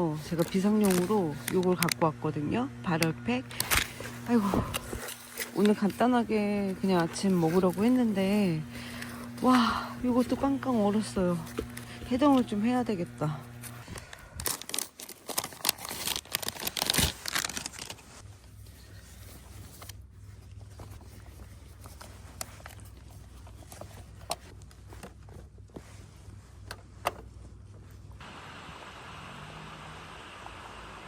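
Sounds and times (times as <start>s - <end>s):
packaging crinkling: 0.0s - 2.1s, 3.5s - 18.2s
steady hiss: 28.2s - 31.0s.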